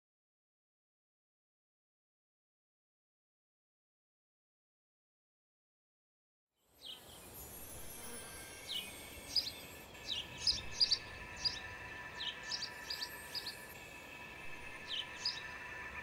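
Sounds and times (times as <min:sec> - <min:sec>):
birds chirping: 0:08.4 - 0:16.0.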